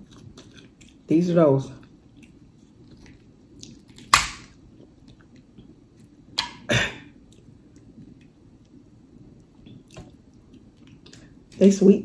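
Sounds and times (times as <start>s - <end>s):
wet chewing and lip smacking: 0.0s - 1.1s, 1.8s - 6.2s, 9.4s - 11.6s.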